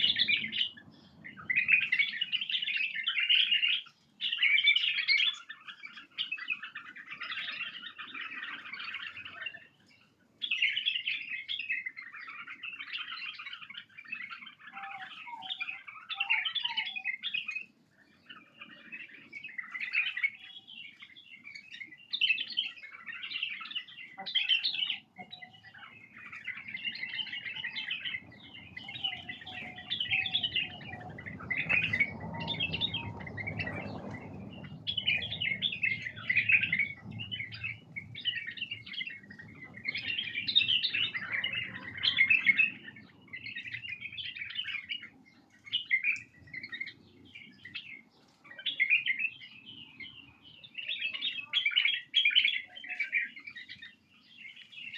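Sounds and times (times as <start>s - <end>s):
bulbuls chattering and calling: 0.0s - 54.9s
faint low rumble: 27.5s - 43.8s.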